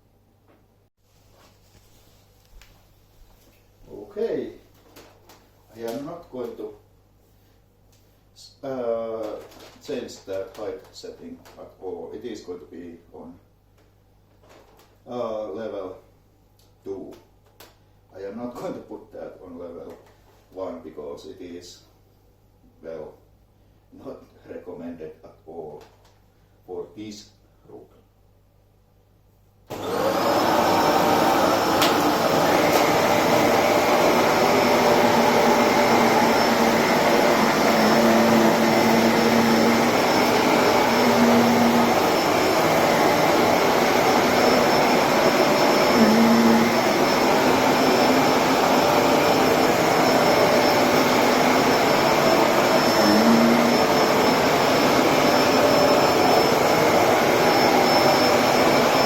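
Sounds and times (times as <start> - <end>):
vacuum cleaner running: 29.7 - 59.0.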